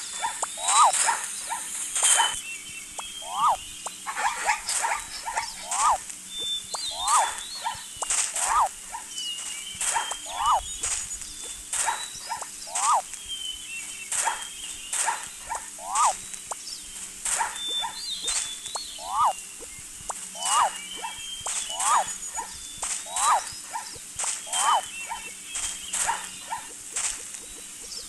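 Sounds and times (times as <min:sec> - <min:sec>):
small birds chirping faintly: 0:00.0 - 0:28.0
animal calling sharply: 0:00.2 - 0:02.4, 0:03.2 - 0:06.0, 0:06.9 - 0:09.0, 0:09.9 - 0:10.6, 0:14.2 - 0:16.2, 0:19.0 - 0:19.4, 0:23.1 - 0:23.9.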